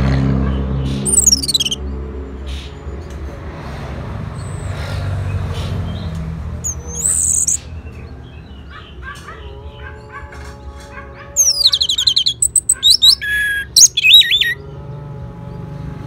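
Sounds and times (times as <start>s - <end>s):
faint bird chirps: 1.0s - 1.8s
songbird whistled call: 1.0s - 1.8s, 6.6s - 7.6s, 11.4s - 14.6s.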